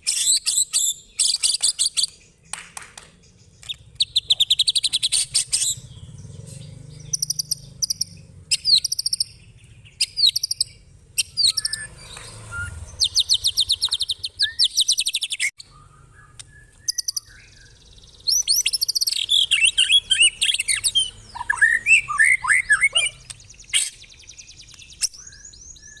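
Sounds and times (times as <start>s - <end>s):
songbird chattering trills: 3.2s - 26.0s
falling whistled bird notes: 11.3s - 26.0s.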